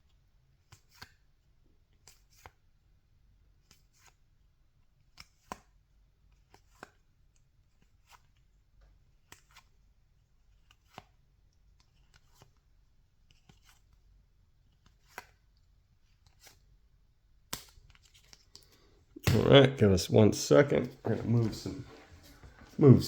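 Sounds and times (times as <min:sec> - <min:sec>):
trading cards clicking and slapping: 0:05.1 - 0:05.7, 0:10.5 - 0:11.2, 0:11.8 - 0:12.6, 0:13.3 - 0:14.0, 0:14.7 - 0:15.4, 0:16.1 - 0:16.6, 0:17.5 - 0:19.7.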